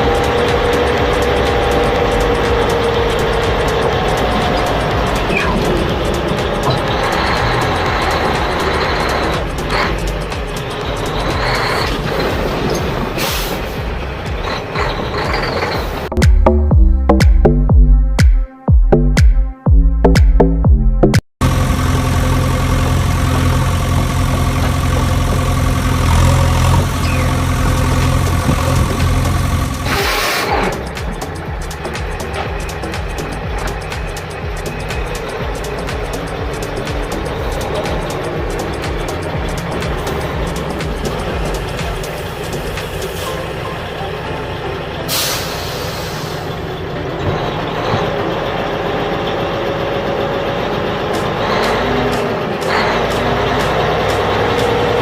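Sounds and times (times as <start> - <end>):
engine idling: 0.0 - 16.1, 21.4 - 55.0
air brake hiss: 13.2 - 13.8, 29.9 - 30.7, 45.1 - 46.6.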